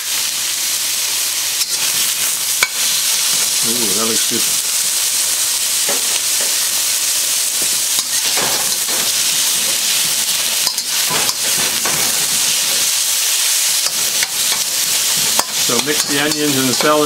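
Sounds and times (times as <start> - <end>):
food sizzling in hot oil: 0.0 - 17.0
spatula scraping a wok: 1.6 - 3.2, 7.5 - 17.0.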